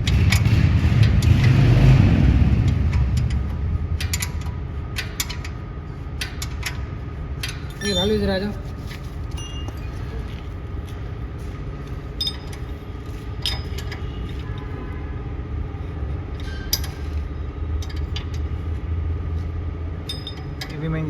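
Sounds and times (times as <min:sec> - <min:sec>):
engine running rumble: 0:00.0 - 0:14.7
metallic clinks of tools: 0:07.5 - 0:08.3, 0:09.4 - 0:10.3, 0:20.0 - 0:20.9.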